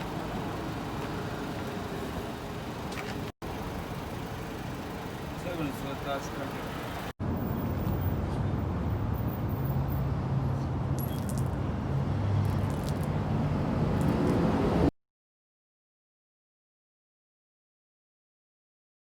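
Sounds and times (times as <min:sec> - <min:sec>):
vehicle hum and road noise: 0:00.0 - 0:14.9.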